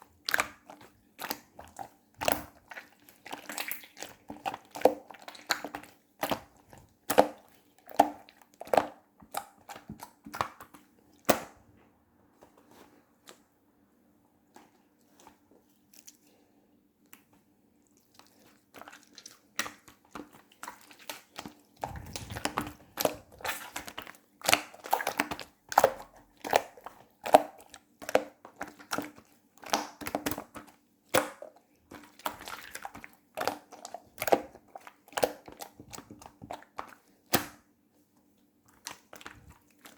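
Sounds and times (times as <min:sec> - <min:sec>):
slime squishing: 0:17.8 - 0:30.7, 0:31.9 - 0:37.4, 0:38.7 - 0:39.9.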